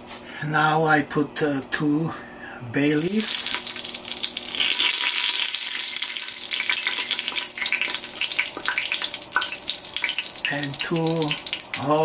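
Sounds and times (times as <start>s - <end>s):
leaves sizzling in hot fat: 3.0s - 12.0s.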